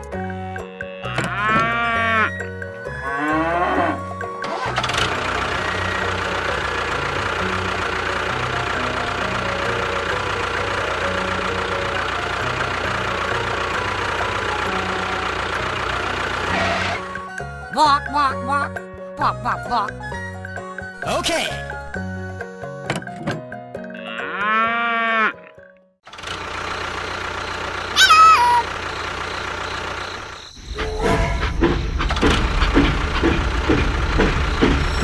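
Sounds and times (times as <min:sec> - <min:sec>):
background music: 0:00.0 - 0:25.8
cow-like moo: 0:00.7 - 0:02.3, 0:03.0 - 0:04.1, 0:24.0 - 0:25.5
mechanical running noise: 0:26.1 - 0:35.0.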